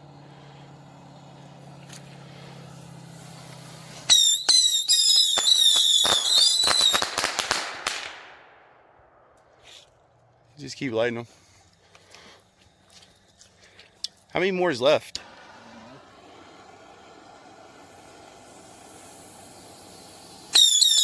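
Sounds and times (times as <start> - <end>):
steady low hum: 0.0 - 4.5
bottle rockets whistling and popping: 0.4 - 10.0, 16.2 - 21.0.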